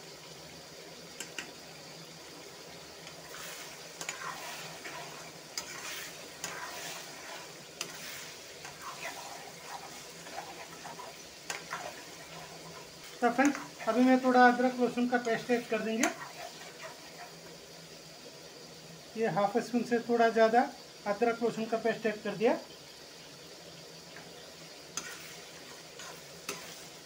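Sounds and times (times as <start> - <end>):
meat sizzling in oil: 0.0 - 27.0
utensil scraping a pan: 3.1 - 17.4, 24.9 - 27.0.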